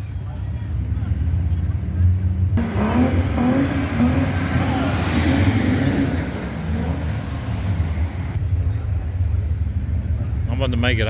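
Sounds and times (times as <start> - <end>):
car engine revving: 2.6 - 8.4.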